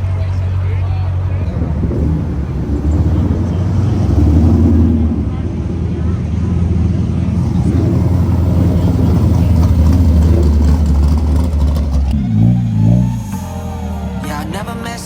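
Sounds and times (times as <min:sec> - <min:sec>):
car engine running loudly: 0:00.0 - 0:15.0.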